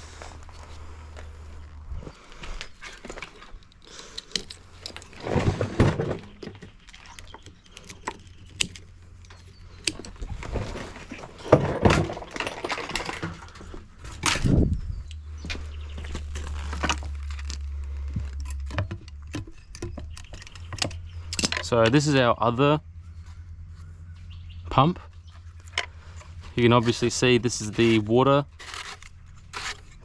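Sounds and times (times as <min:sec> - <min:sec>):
metal and plastic clattering: 0:02.7 - 0:14.7, 0:16.1 - 0:22.0.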